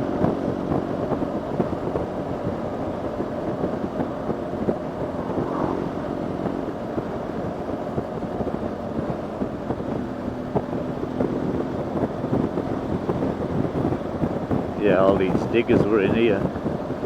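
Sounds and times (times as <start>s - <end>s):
motorcycle engine running: 0.0s - 17.0s
wind rush: 0.0s - 17.0s.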